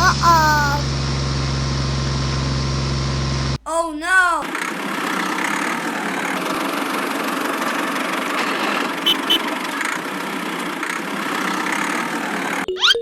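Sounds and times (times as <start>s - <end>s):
engine running with gritty hum: 0.9s - 3.6s, 4.5s - 12.7s.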